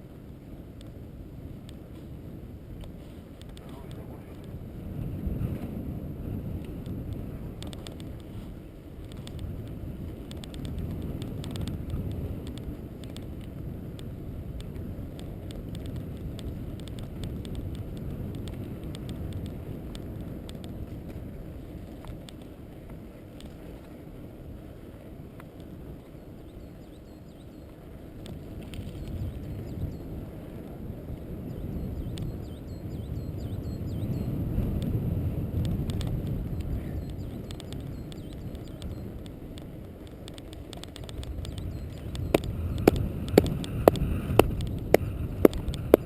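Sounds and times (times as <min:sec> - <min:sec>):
wind buffeting microphone: 0:00.0 - 0:46.0
light clicks and rattles: 0:06.6 - 0:24.0, 0:35.6 - 0:46.0.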